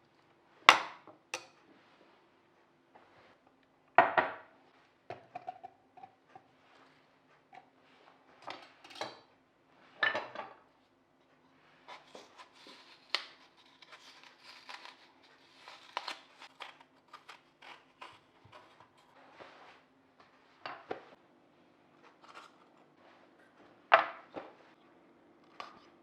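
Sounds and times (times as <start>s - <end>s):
rustling scrape: 11.6s - 16.5s, 17.2s - 21.2s.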